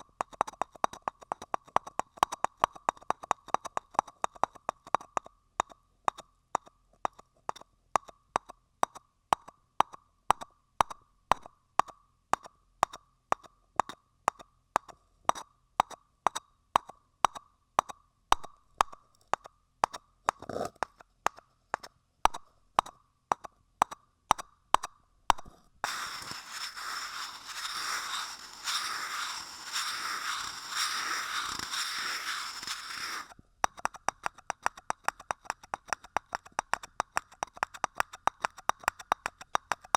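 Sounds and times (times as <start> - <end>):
dense scratchy noise: 25.8 - 36.6.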